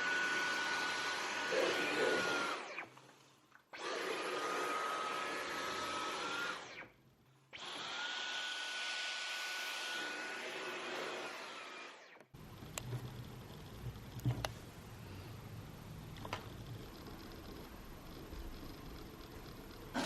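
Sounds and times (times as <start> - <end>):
vacuum cleaner whining: 0.0 - 3.0, 3.7 - 18.4, 19.2 - 20.0.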